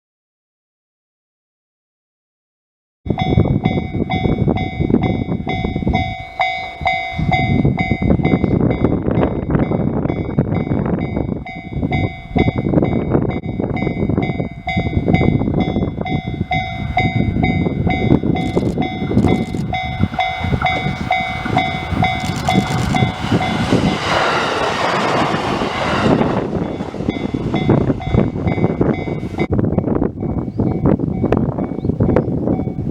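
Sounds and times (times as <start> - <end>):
electric train rumbling past: 3.1 - 32.9
rapidly repeating ringing tone: 16.6 - 25.1
loud rushing swell: 17.8 - 29.5.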